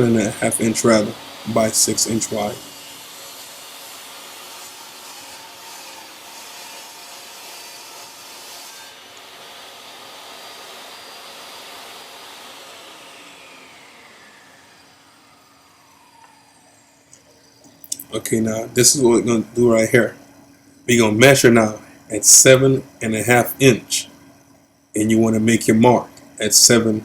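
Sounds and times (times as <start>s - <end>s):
table saw cutting wood: 0.0s - 20.2s.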